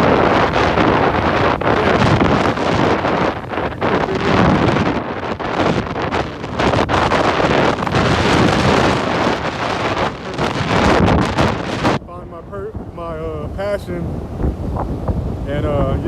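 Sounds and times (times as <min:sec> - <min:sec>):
strong wind buffeting microphone: 0:00.0 - 0:16.0.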